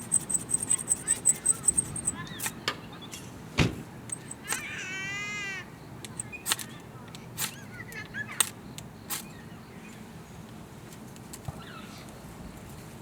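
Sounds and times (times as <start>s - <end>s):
faint bird chirps: 0.0s - 3.3s.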